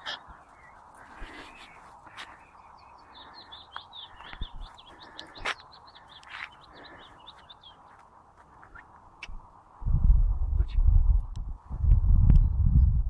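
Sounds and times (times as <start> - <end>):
bird chirping: 0.0 - 9.4.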